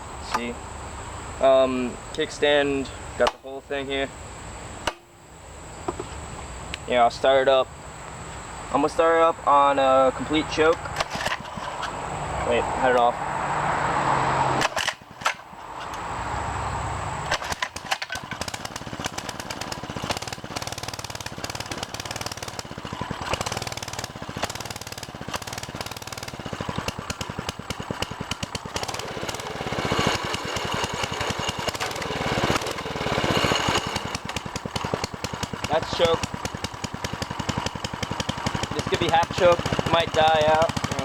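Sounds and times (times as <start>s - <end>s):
small engine starting and running: 9.5s - 16.4s, 17.2s - 41.0s.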